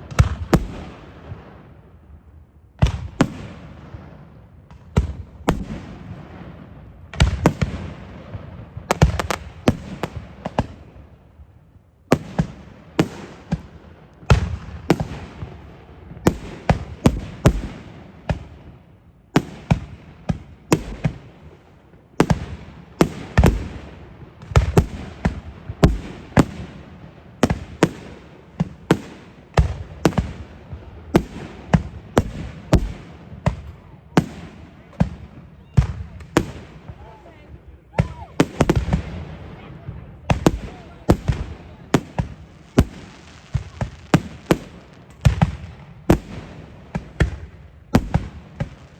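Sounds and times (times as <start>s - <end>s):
fireworks bursts and booms: 0.0s - 48.9s
fireworks crackle: 20.7s - 48.9s.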